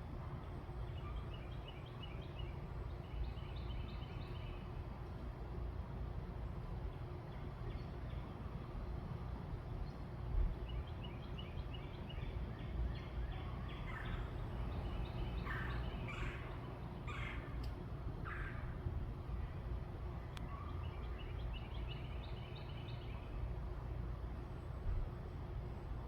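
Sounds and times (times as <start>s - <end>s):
birds calling: 10.6s - 19.3s.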